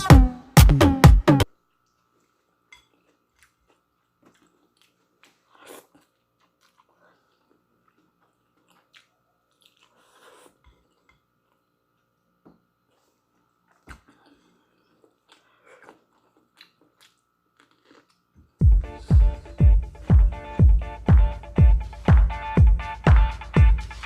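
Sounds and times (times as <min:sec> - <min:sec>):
dance music: 0:00.0 - 0:01.5, 0:18.6 - 0:24.0
person chewing noodles: 0:01.5 - 0:21.0.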